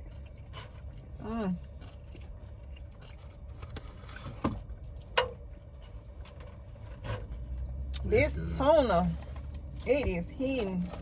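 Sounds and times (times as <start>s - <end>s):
car cabin rumble: 4.3s - 11.0s.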